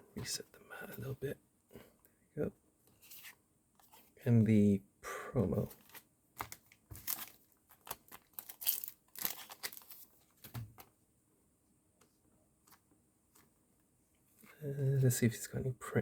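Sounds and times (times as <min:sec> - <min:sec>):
plastic packaging crinkling and tearing: 0:05.7 - 0:10.6.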